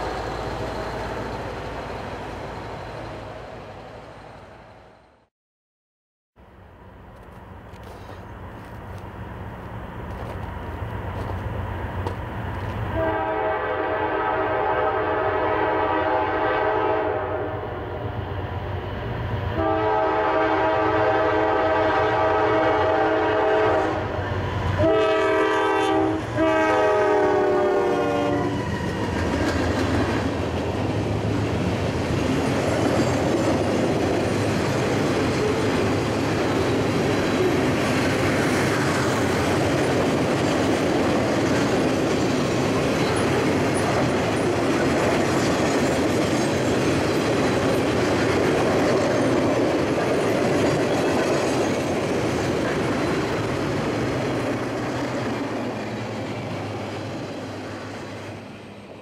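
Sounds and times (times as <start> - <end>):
train wheels on track: 0.0 - 5.2, 6.5 - 59.0
locomotive air horn blasts: 13.0 - 17.8, 19.6 - 24.2, 24.8 - 28.8.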